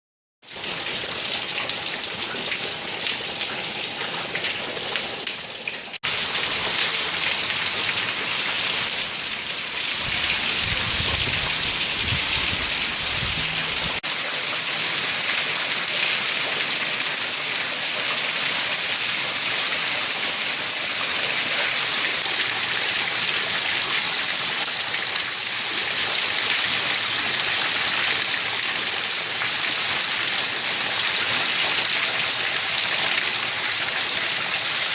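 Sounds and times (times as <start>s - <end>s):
heavy rain hissing: 6.0s - 16.0s.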